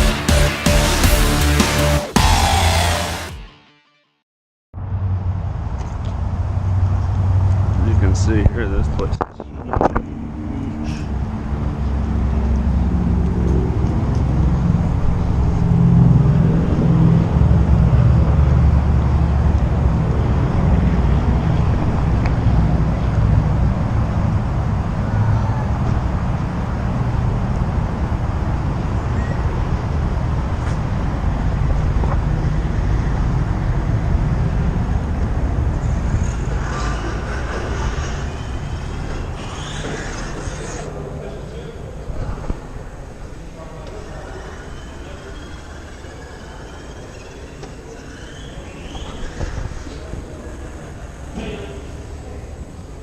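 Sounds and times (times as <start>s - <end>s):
car engine drone: 0.0s - 3.4s, 4.8s - 53.0s
tyre and road noise: 4.8s - 53.0s.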